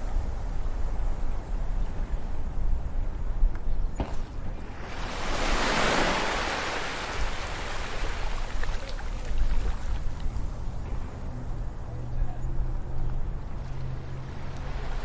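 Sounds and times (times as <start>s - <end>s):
ocean wave breaking on beach: 4.6s - 9.4s.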